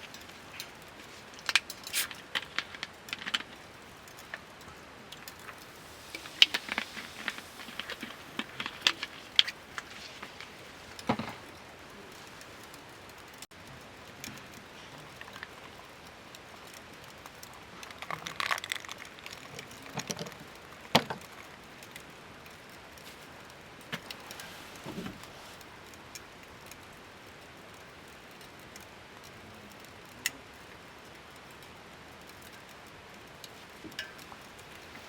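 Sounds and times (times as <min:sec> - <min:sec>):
small objects clicking and knocking: 0:00.0 - 0:25.3, 0:32.3 - 0:35.0
background hiss: 0:00.0 - 0:35.0.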